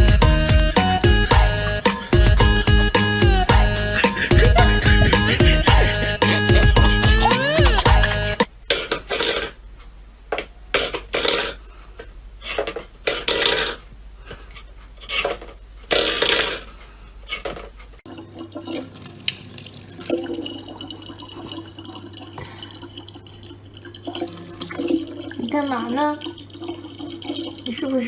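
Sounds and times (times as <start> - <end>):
water splashing: 18.1 - 28.0.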